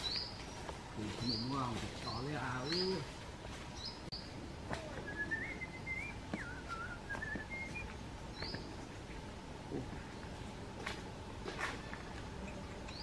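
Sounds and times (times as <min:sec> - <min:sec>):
birds chirping: 0:00.0 - 0:13.0
bird whistling: 0:04.7 - 0:08.6.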